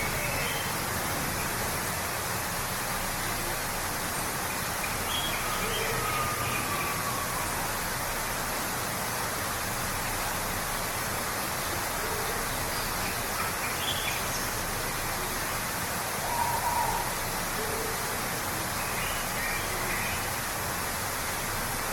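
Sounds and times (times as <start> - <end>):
waterfall rushing: 0.0 - 21.9
faint bird calls: 16.2 - 18.0.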